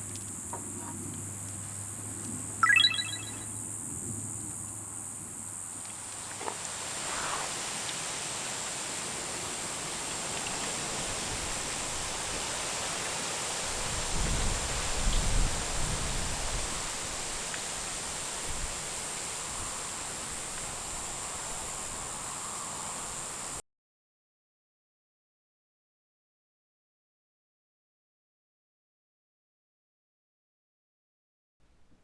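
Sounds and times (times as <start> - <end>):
insects chirring: 18.1 - 23.6.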